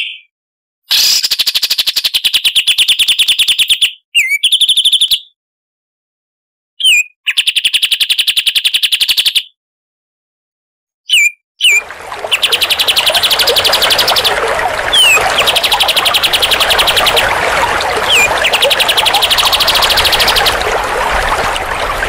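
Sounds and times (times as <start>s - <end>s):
songbird trilling: 11.1s - 17.2s.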